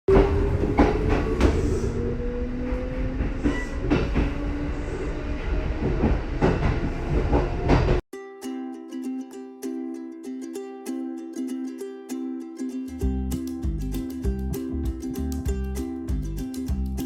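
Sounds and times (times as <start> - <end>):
ukulele music: 8.1 - 17.0.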